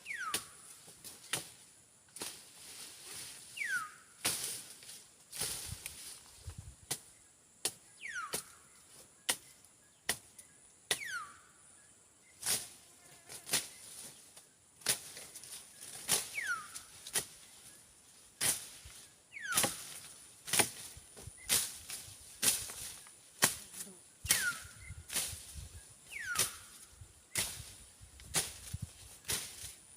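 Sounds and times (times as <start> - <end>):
insects buzzing: 0.0 - 29.9
machete chopping brush: 0.1 - 2.6, 4.2 - 6.2, 6.8 - 8.6, 9.3 - 11.2, 13.4 - 14.2, 14.8 - 17.6, 18.4 - 29.9.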